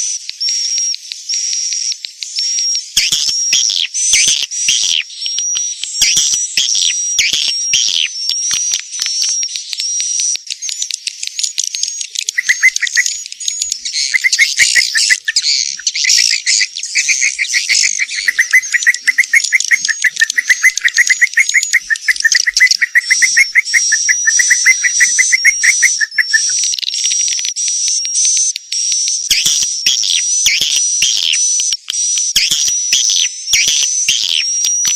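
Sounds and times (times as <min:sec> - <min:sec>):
swiftlets twittering: 0:09.8 - 0:27.4.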